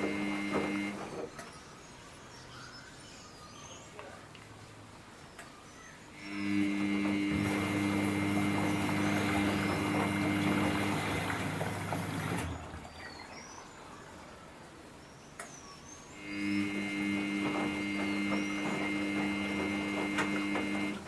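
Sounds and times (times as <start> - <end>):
washing machine humming: 0.0 - 1.6, 6.1 - 14.8, 16.1 - 21.0
water rushing: 7.3 - 15.0.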